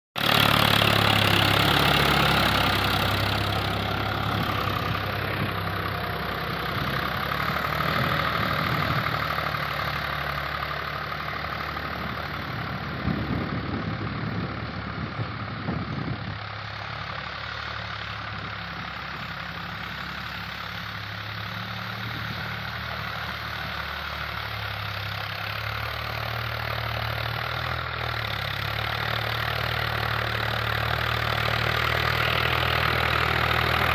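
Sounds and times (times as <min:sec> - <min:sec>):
tractor diesel engine running: 0:00.2 - 0:33.9.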